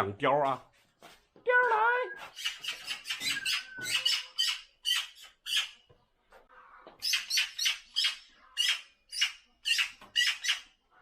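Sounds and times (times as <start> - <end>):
magpie harsh rasping calls: 7.1 - 10.7.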